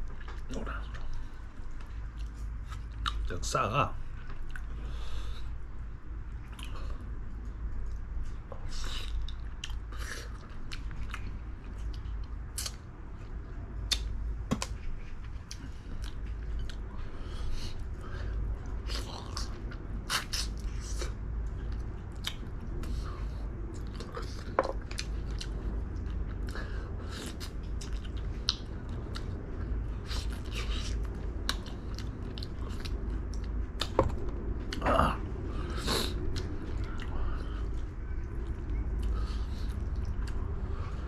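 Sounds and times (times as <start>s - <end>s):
person chewing food: 0.0s - 3.3s, 4.1s - 41.0s
wet mouth smacks: 13.9s - 14.8s.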